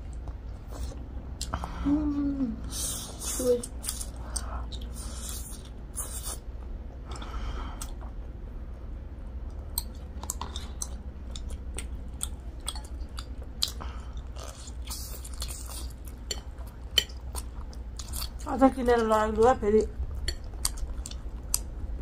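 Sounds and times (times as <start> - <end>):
chewing noodles: 9.4 - 19.0, 20.1 - 22.0.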